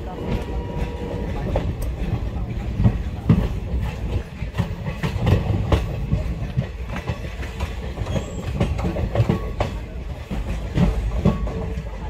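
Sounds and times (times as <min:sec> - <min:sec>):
low train rumble: 0:00.0 - 0:12.0
train wheels clattering: 0:00.0 - 0:12.0.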